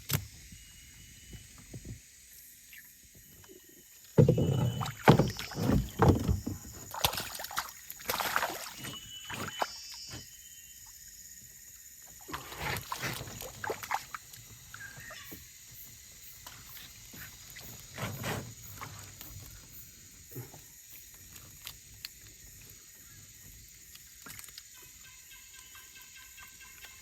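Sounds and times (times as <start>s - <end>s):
water splashing and sloshing: 3.4s - 10.3s, 12.0s - 15.5s
knocks against boat hull: 4.2s - 6.8s.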